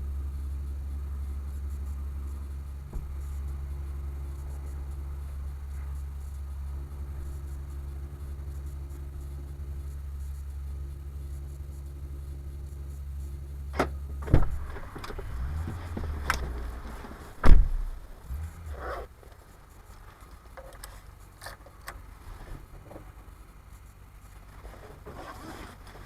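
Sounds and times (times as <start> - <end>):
engine idling: 0.0 - 26.0
heavy thump: 2.9 - 3.4, 13.8 - 18.3.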